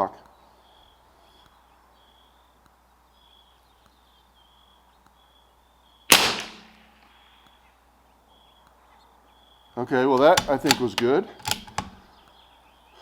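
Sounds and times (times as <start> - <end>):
rifle shot: 6.1 - 7.0.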